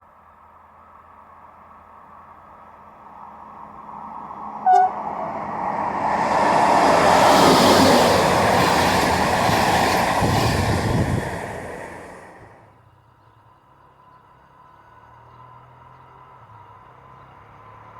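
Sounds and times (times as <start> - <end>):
train passing wheel noise: 3.2 - 12.7
train horn toot: 4.7 - 5.1.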